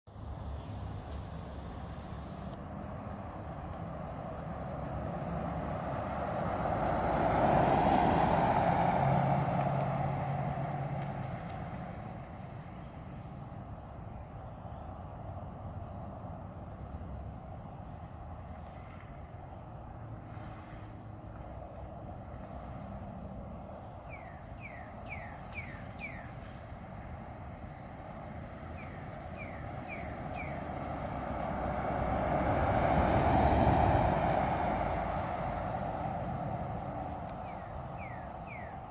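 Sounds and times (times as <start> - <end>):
low engine hum: 0.1 - 38.9
traffic rumble: 0.1 - 38.9
vehicle driving past: 0.8 - 13.1, 27.3 - 38.9
bird chirping: 24.0 - 26.5, 28.6 - 31.2, 37.4 - 38.9.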